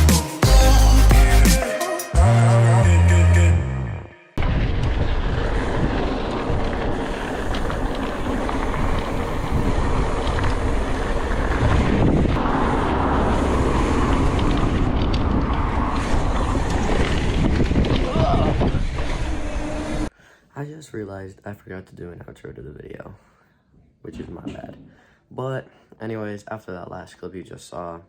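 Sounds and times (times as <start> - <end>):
wind rushing over microphone: 4.4 - 20.1.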